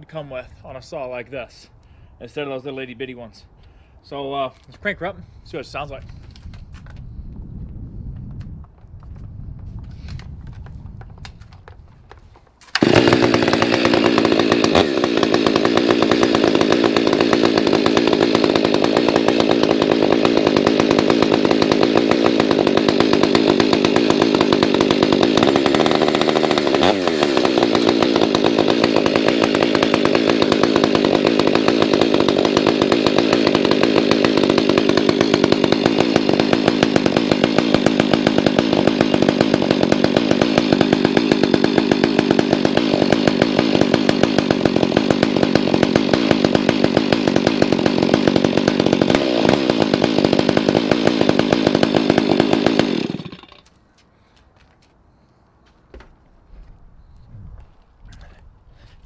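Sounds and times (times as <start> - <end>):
chainsaw running at high revs: 12.6 - 53.7.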